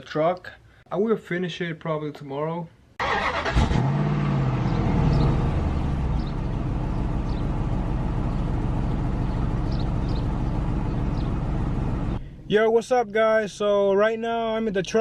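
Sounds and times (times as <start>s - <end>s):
engine revving and idling: 3.0s - 12.2s.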